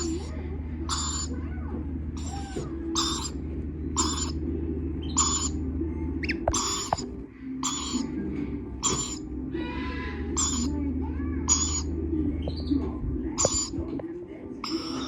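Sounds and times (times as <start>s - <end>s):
chicks screeching: 0.0s - 0.3s, 0.9s - 1.4s, 2.2s - 4.4s, 5.0s - 5.6s, 6.2s - 8.1s, 8.8s - 10.8s, 11.5s - 13.9s, 14.6s - 15.0s.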